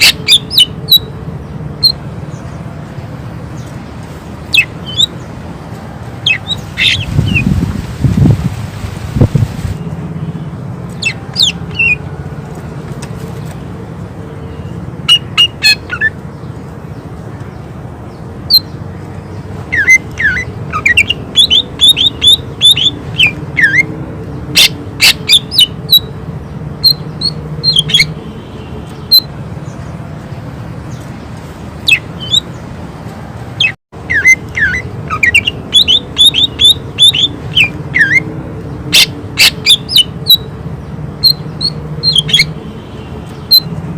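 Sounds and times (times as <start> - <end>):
bird singing whistled notes: 4.5 - 5.2, 6.2 - 7.5, 19.7 - 23.9, 31.9 - 32.6, 33.6 - 38.2.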